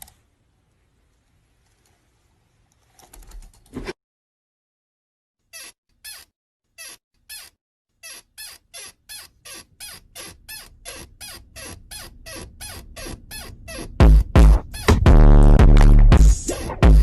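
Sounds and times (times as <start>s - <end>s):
small animal squeaking: 5.5s - 14.0s, 14.6s - 14.9s
loud music with heavy beat: 14.0s - 17.0s.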